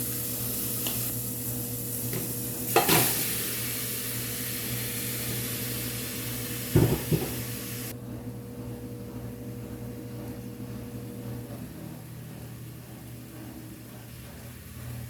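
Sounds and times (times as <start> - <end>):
food sizzling in a frying pan: 0.0 - 7.9
steady low hum: 0.0 - 15.0
pan knocks: 6.8 - 7.4.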